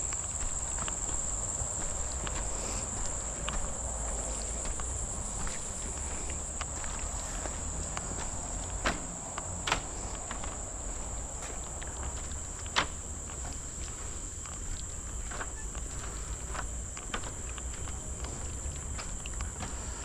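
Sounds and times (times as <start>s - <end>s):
footsteps on trail: 0.0s - 20.0s.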